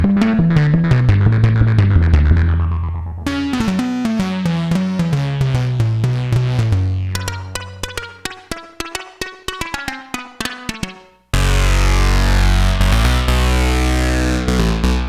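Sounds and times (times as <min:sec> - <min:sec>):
synthesizer bass sequence: 0:00.0 - 0:08.0, 0:11.4 - 0:15.0.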